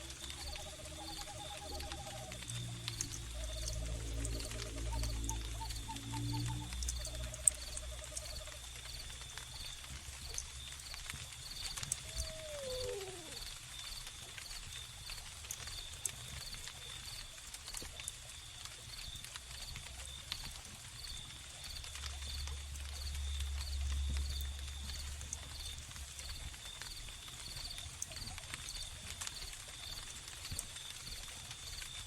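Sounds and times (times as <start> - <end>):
low rumble: 0.0 - 9.3
crickets chirping: 0.0 - 17.4, 18.4 - 32.0
wood fire crackling: 0.0 - 32.0
falling animal call: 12.0 - 13.5.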